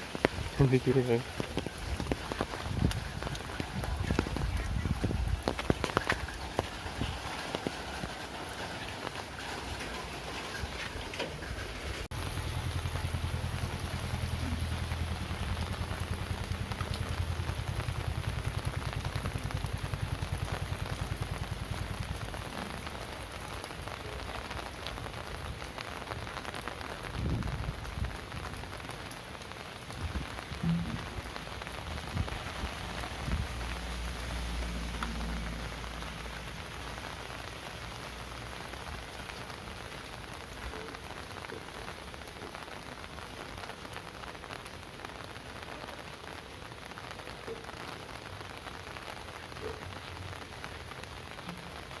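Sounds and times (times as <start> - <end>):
heavy rain: 0.0 - 52.0
low thumps: 30.5 - 31.4.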